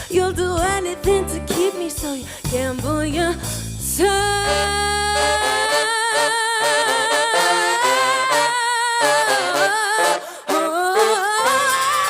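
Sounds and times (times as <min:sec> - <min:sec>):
woman singing wordless notes: 0:00.1 - 0:03.4, 0:04.0 - 0:12.0.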